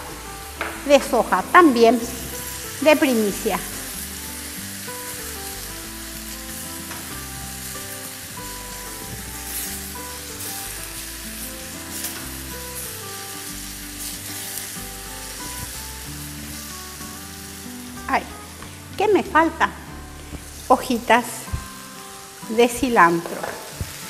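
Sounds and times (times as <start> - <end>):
background music with held notes: 0.0 - 24.0
food sizzling in a hot pan: 0.0 - 24.0.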